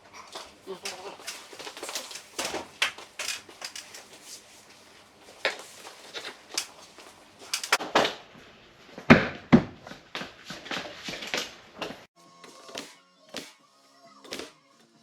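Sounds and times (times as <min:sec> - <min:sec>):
wooden pieces knocking and clattering: 0:00.3 - 0:04.4, 0:05.3 - 0:07.8.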